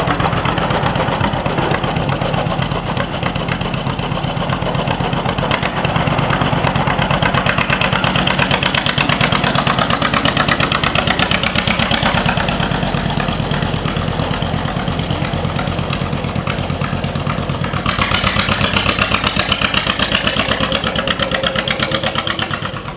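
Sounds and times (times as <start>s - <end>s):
tractor engine running: 0.0s - 22.9s.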